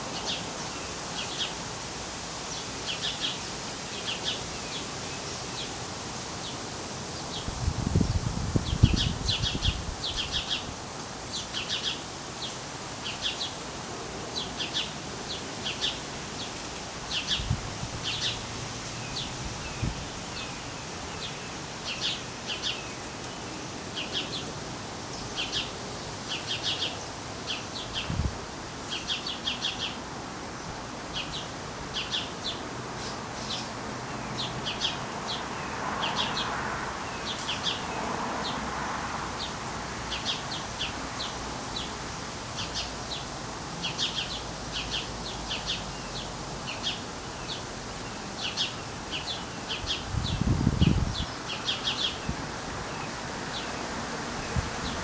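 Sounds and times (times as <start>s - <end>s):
small birds chirping: 14.4s - 36.5s, 39.4s - 55.0s.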